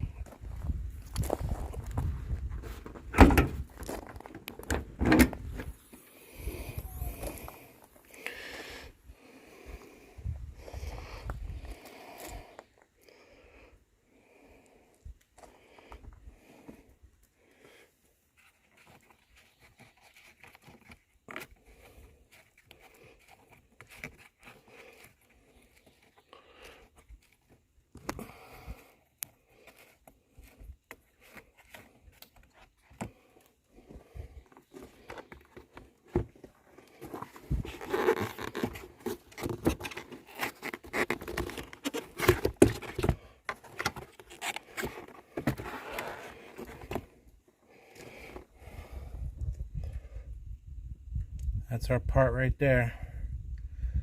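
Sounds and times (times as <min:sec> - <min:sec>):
handling scrapes and rustles: 0:18.1 - 0:48.8.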